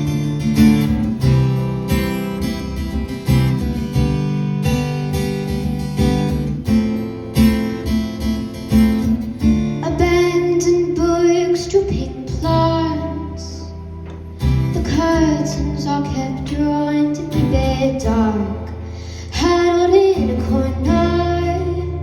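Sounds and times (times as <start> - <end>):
acoustic guitar strumming: 0.0 - 22.0
woman singing: 9.6 - 13.8, 14.6 - 22.0.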